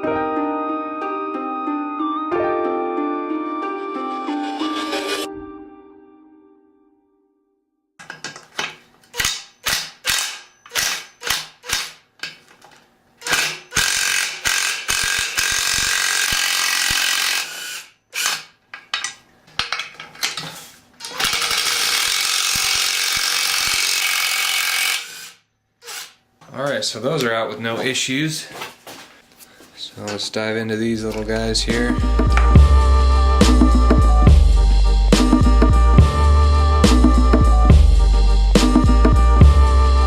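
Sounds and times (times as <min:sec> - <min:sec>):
short mechanical tool strokes: 0:21.1 - 0:26.2.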